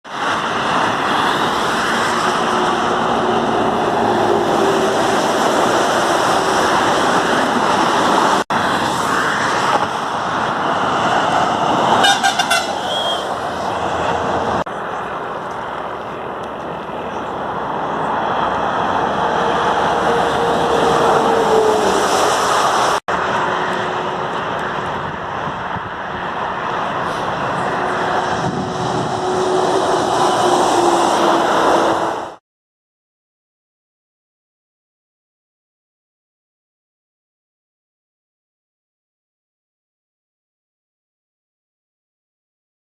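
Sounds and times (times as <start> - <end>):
heavy trucks passing: 0.0 - 32.4
road noise: 0.0 - 32.4
truck horns: 11.8 - 14.6, 19.2 - 24.7, 27.0 - 32.4.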